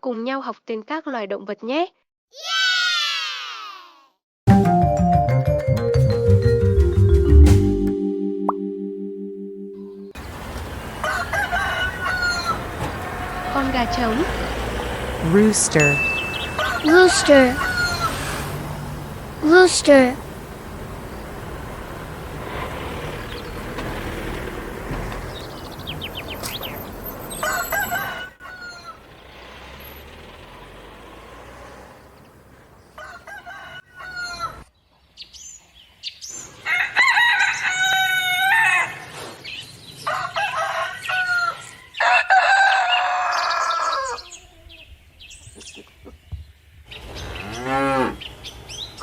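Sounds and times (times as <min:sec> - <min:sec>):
rooster crowing: 0:10.6 - 0:14.8, 0:16.5 - 0:18.4, 0:27.3 - 0:29.0, 0:32.9 - 0:34.6, 0:36.6 - 0:39.2, 0:40.0 - 0:44.8.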